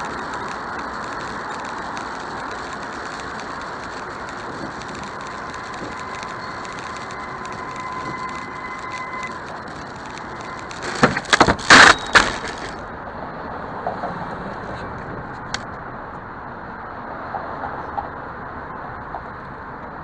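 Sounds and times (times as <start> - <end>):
thin steady tone: 0.0 - 10.9
road noise: 0.0 - 20.0
rattling debris: 7.2 - 12.9
crash bangs and crunching: 10.7 - 12.8.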